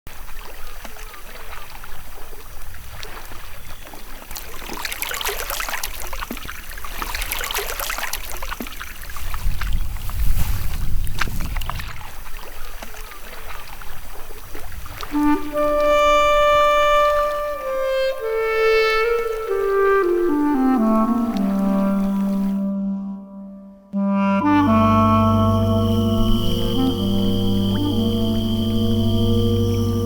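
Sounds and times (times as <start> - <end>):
water dripping and sloshing: 0.1 - 15.4
kayak paddles splashing in water: 0.1 - 22.7
low rumble: 24.4 - 30.0.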